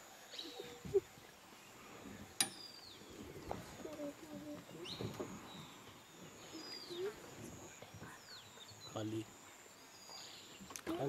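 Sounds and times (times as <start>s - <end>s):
faint forest ambience: 0.0s - 11.0s
birds whistling: 4.7s - 7.3s.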